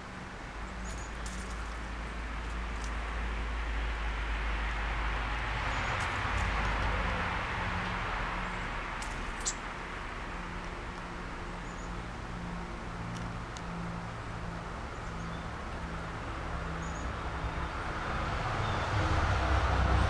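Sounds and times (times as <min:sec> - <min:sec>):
car passing: 0:01.2 - 0:20.0
faint bird chirps: 0:09.4 - 0:09.6.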